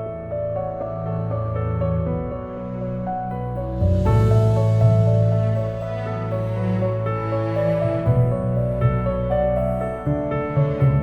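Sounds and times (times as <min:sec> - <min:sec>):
soft new-age music: 0:00.0 - 0:11.0
steady low bass: 0:03.4 - 0:11.0.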